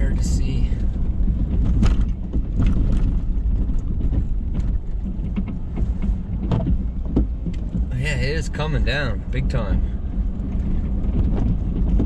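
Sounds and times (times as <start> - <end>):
truck engine and road rumble: 0.0 - 12.0
sharp clicks and knocks: 0.9 - 9.5.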